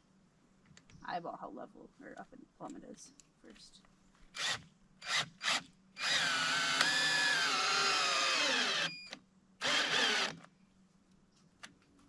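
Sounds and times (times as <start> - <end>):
power drill driving into wood: 4.4 - 10.4.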